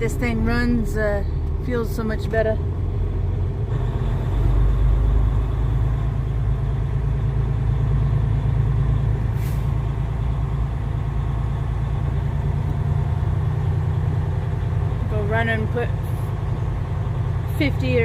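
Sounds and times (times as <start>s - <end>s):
truck diesel engine droning: 0.0s - 18.0s.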